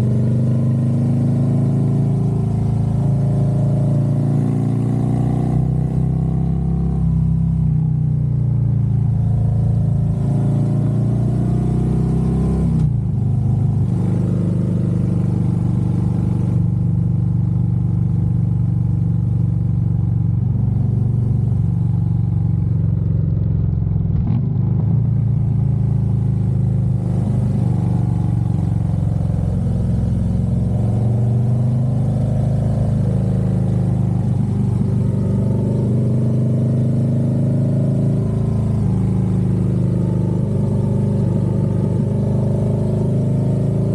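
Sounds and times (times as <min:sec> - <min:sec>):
motorcycle engine running: 0:12.8 - 0:43.9.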